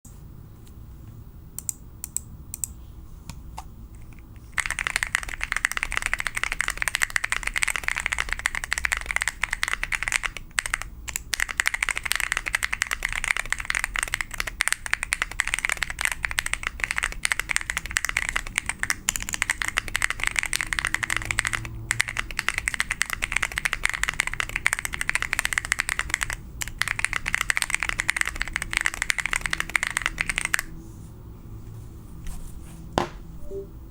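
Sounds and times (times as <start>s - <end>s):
mechanical keyboard typing: 4.0s - 30.7s.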